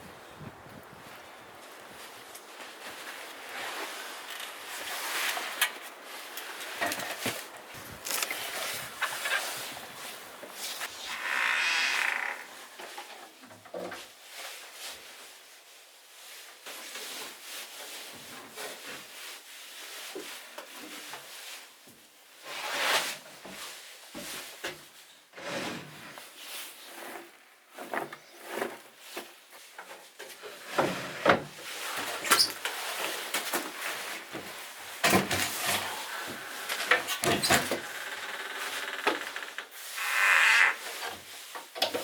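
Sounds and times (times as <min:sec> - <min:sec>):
wood scraping and rubbing: 0:07.6 - 0:12.8, 0:35.1 - 0:40.8.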